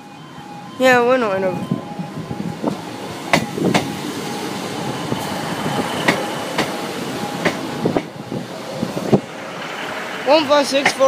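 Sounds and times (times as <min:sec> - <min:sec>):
diesel train running: 0:00.0 - 0:11.0
wheels clicking over rail joints: 0:02.7 - 0:04.4, 0:05.0 - 0:11.0.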